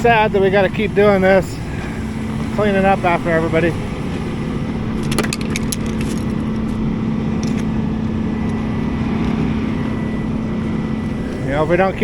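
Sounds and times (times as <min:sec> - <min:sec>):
truck engine running: 0:00.0 - 0:12.0
sharp clicks and rattles: 0:05.0 - 0:06.8, 0:07.4 - 0:07.7.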